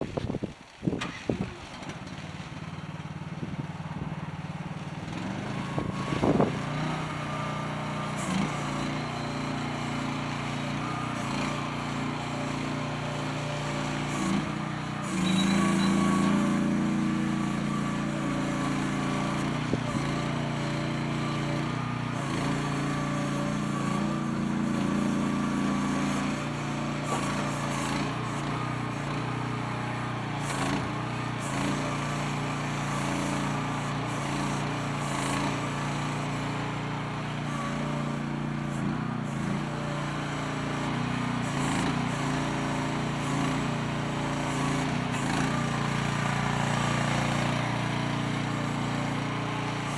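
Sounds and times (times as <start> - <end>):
small excavator engine running: 0.0 - 49.9.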